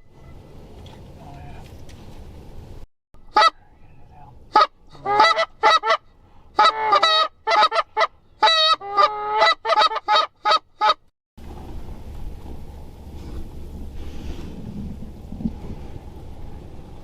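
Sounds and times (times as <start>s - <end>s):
goose honking: 4.5s - 6.0s, 6.6s - 11.0s.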